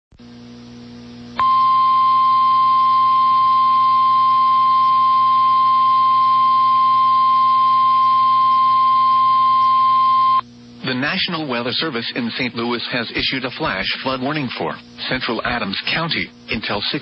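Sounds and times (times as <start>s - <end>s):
loud warning beep tone: 1.4s - 10.4s
faint radio hum: 10.8s - 17.0s.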